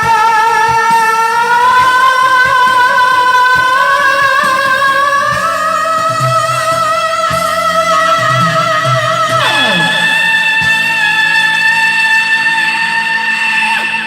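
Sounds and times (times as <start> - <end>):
instrumental accompaniment: 0.0 - 14.0
long sung note with vibrato: 1.4 - 12.3.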